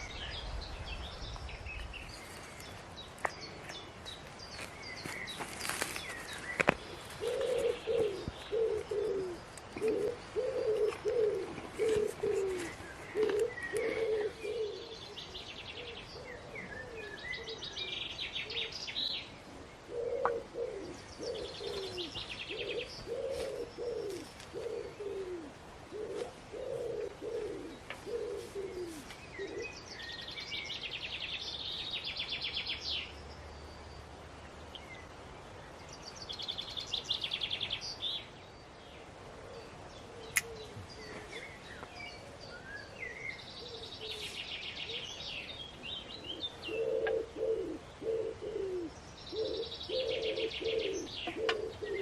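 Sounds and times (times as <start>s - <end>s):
pigeon cooing: 6.8s - 18.7s, 19.5s - 29.8s, 46.1s - 52.0s.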